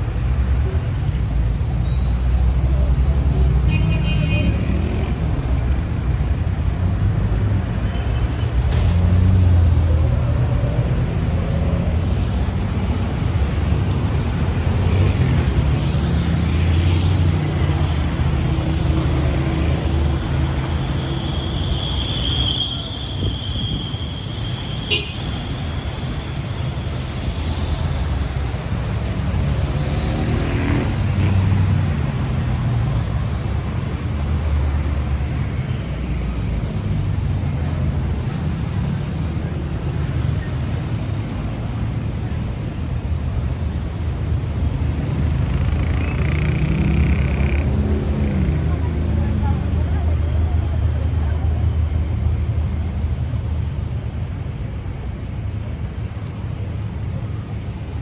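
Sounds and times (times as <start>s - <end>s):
traffic rumble: 0.0s - 58.0s
brief high squeal: 19.8s - 27.6s.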